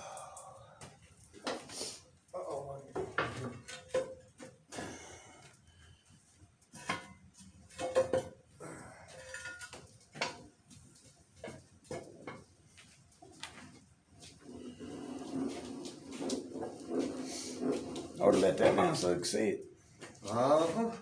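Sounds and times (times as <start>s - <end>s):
metal tools clinking and knocking: 9.2s - 9.9s.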